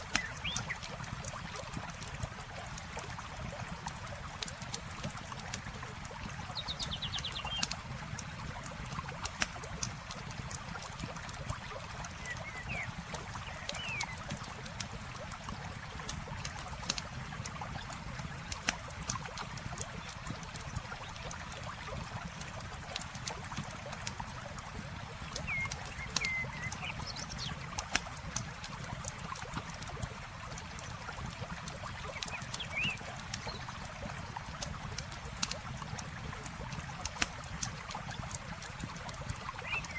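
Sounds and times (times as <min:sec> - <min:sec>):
campfire crackling and popping: 0:00.0 - 0:12.2, 0:12.8 - 0:39.9
flowing water: 0:00.0 - 0:39.9
bird chirps: 0:25.4 - 0:27.5.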